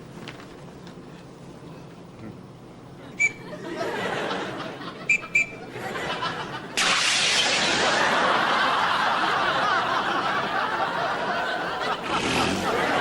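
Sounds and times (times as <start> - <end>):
audience laughter: 3.0 - 13.0.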